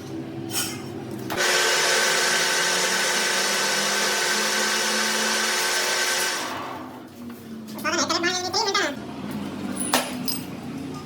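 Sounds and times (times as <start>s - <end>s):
power tool whining: 1.3s - 6.9s.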